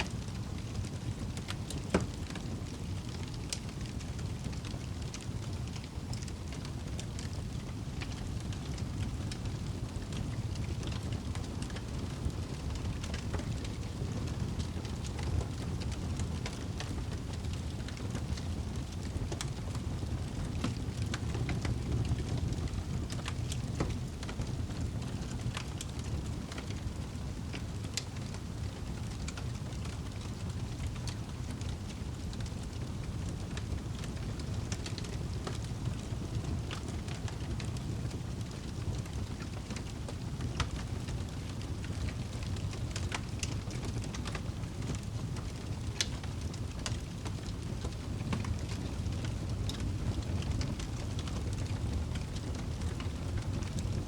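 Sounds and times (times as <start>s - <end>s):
fire crackling and popping: 0.0s - 54.0s
fire low rumble: 0.0s - 54.0s.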